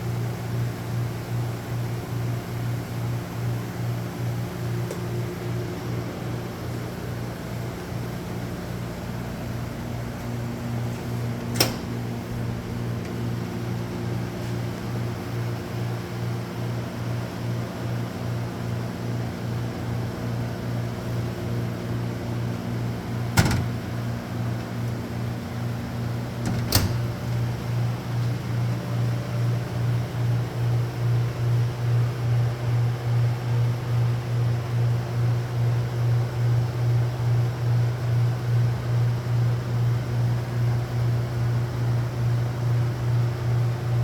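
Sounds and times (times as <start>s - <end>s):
machine humming: 22.5s - 29.7s
sharp clicks or knocks: 23.4s - 23.8s.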